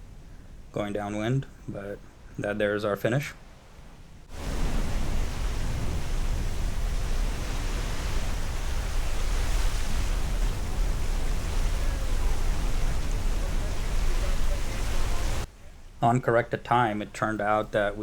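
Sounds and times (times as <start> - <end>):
rushing wind with low rumble: 0.0 - 16.0
rushing water: 4.3 - 15.5.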